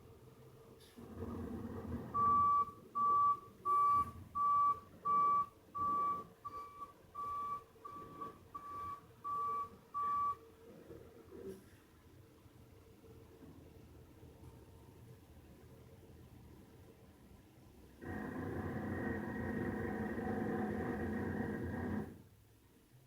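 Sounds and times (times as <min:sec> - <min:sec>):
truck reversing alarm beeping: 0:02.1 - 0:10.4
low engine rumble: 0:18.0 - 0:22.2.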